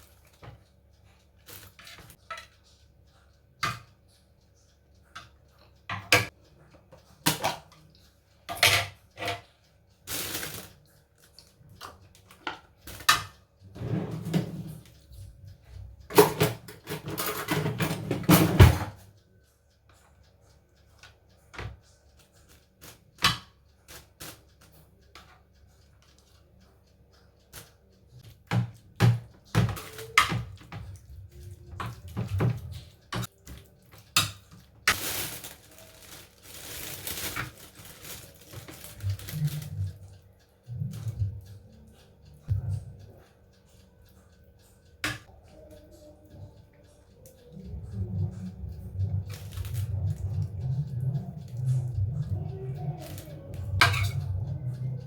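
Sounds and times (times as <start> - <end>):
dishes and utensils clinking: 8.5 - 9.4, 16.1 - 19.0, 53.0 - 54.5.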